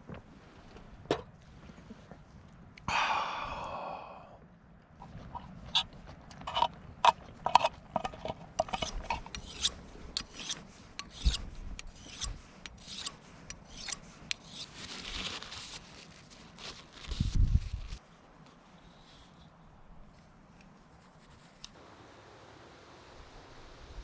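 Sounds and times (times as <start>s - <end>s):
knife scraping: 5.0s - 15.8s.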